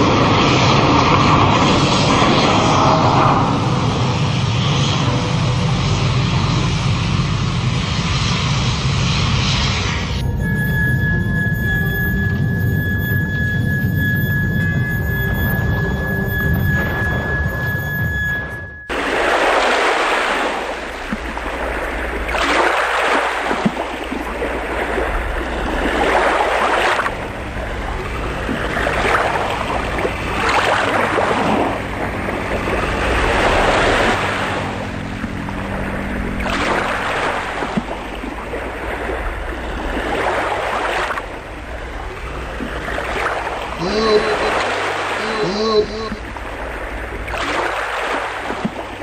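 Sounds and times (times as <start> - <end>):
ocean waves surging: 10.2 - 49.0.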